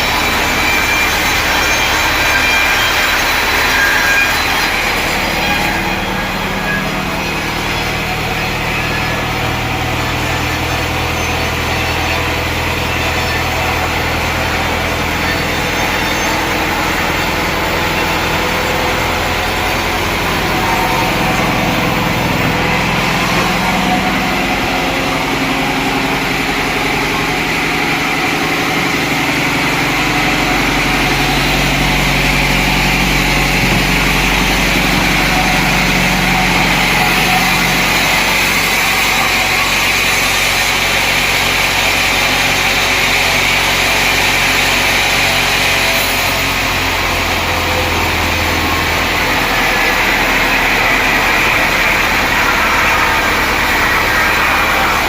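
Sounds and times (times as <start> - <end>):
engine hum: 0.0 - 55.0
sawmill machinery running: 0.0 - 55.0.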